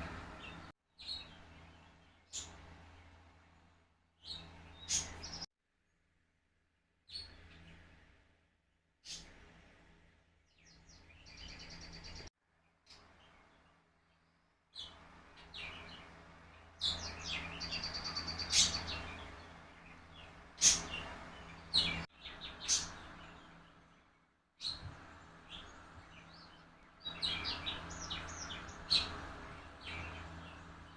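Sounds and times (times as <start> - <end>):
low steady hum: 0.0 - 5.5
small birds chirping: 0.0 - 5.5, 7.0 - 8.3, 9.0 - 30.9.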